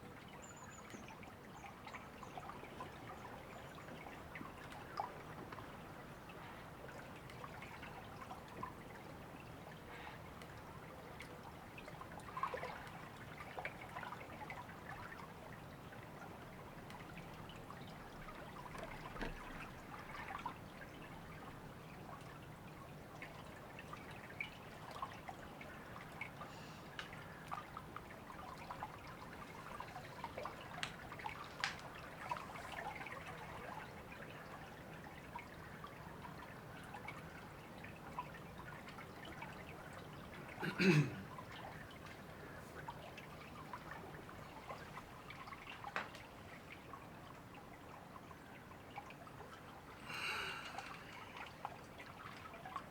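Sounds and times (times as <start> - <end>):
river babbling: 37.4 - 52.9.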